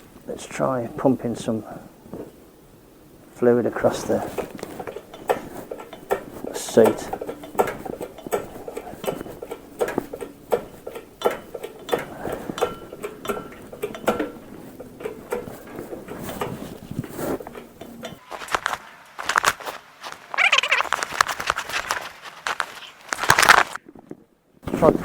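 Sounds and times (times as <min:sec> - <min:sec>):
metallic clinks and knocks: 0:04.2 - 0:19.7.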